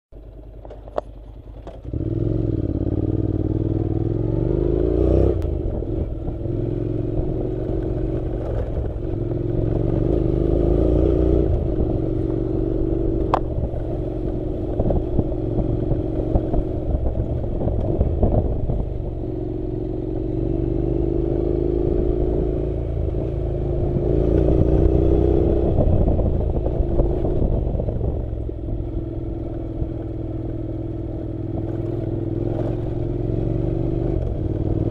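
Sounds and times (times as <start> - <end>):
motorcycle clattering on rough road: 0.2 - 3.2, 7.2 - 10.2, 11.5 - 19.2
motorcycle engine running: 0.2 - 34.9.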